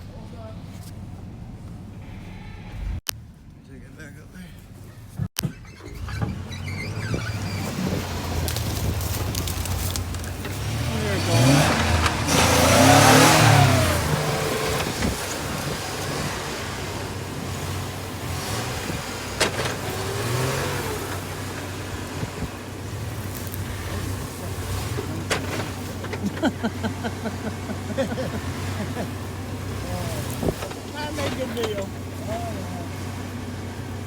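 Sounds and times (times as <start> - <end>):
truck engine revving: 5.5 - 34.0.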